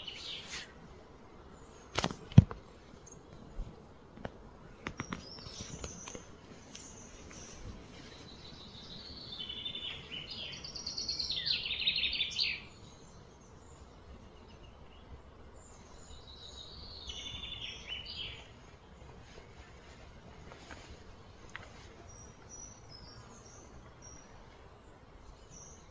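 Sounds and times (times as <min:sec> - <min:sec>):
faint outdoor background noise: 0:00.0 - 0:25.9
songbird trilling: 0:08.5 - 0:12.8, 0:16.3 - 0:18.4.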